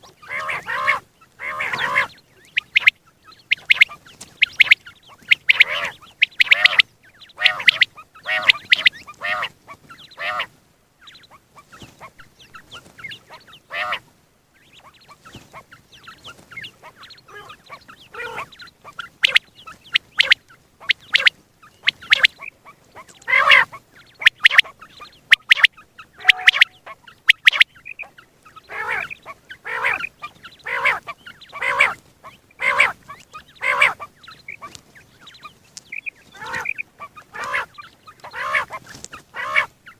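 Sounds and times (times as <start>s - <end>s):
quail calling: 0.0s - 39.9s.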